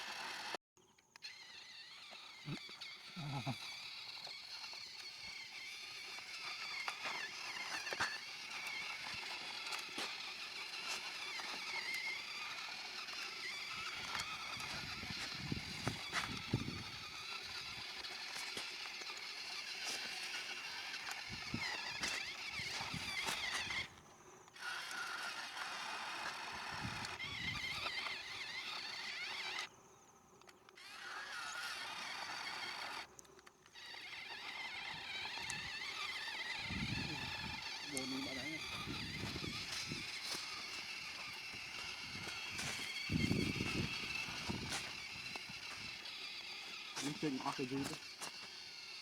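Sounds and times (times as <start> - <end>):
small electric motors whining: 0.0 - 49.0.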